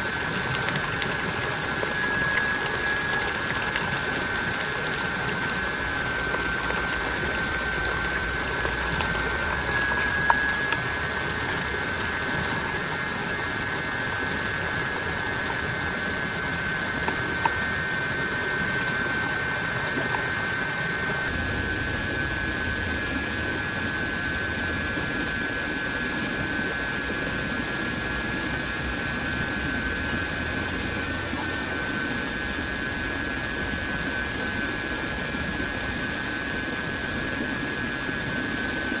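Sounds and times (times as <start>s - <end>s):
insect high whine: 0.0s - 39.0s
insect pulsing chirr: 0.0s - 39.0s
low rumble: 21.3s - 24.6s.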